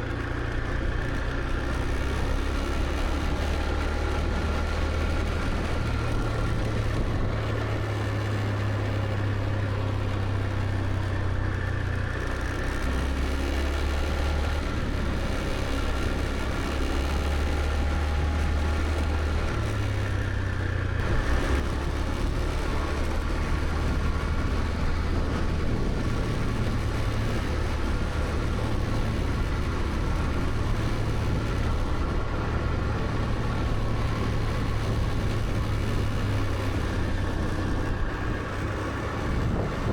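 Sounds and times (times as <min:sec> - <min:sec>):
road and wind noise: 0:00.0 - 0:39.9
scooter engine revving: 0:12.0 - 0:39.9.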